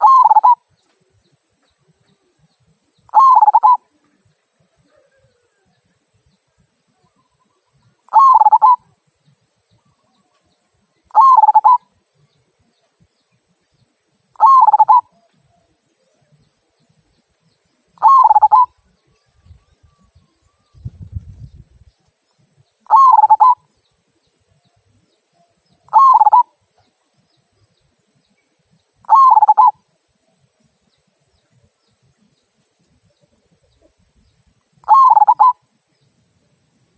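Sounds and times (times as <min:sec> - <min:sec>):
dove cooing: 0:00.0 - 0:00.6, 0:03.1 - 0:03.9, 0:04.8 - 0:05.7, 0:08.1 - 0:08.8, 0:11.1 - 0:11.8, 0:14.4 - 0:15.4, 0:18.0 - 0:18.7, 0:22.9 - 0:23.6, 0:25.9 - 0:26.6, 0:29.0 - 0:29.8, 0:34.8 - 0:35.6.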